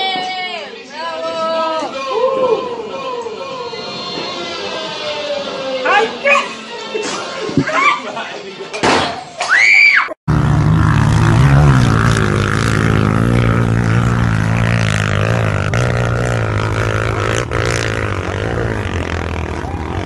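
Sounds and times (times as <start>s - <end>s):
motorcycle engine revving high: 10.3s - 20.0s.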